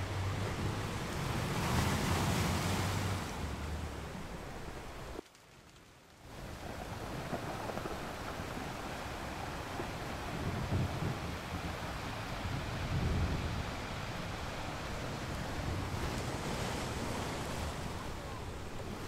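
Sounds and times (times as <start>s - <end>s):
rushing noise with low hum: 6.3s - 19.0s.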